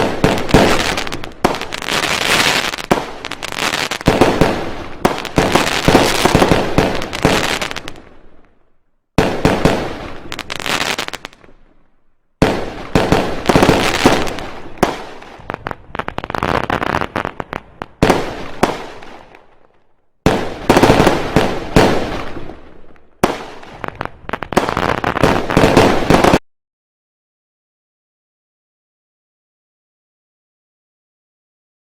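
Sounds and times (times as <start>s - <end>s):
fireworks crackling bangs: 0.0s - 8.2s, 9.2s - 11.6s, 12.4s - 19.5s, 20.2s - 22.6s, 23.2s - 26.4s.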